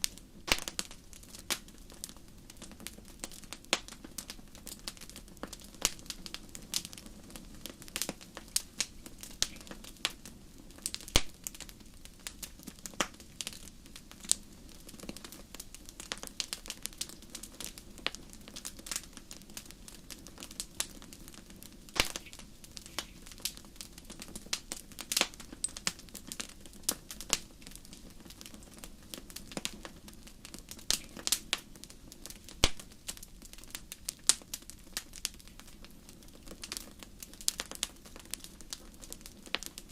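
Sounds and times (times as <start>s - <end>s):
fire crackling in fireplace: 0.0s - 39.9s
low rumble of flames: 0.0s - 39.9s.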